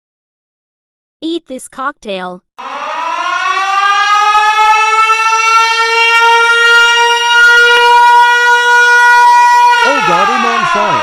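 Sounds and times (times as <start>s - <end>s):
siren wailing: 2.6s - 11.0s.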